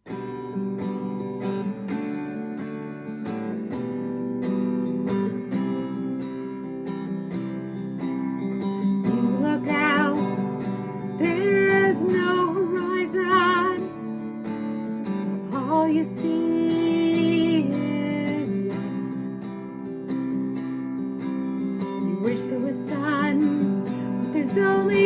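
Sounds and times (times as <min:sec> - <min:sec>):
acoustic guitar strumming: 0:00.0 - 0:25.0
woman singing with vibrato: 0:09.0 - 0:13.9, 0:15.5 - 0:19.3, 0:21.9 - 0:25.0.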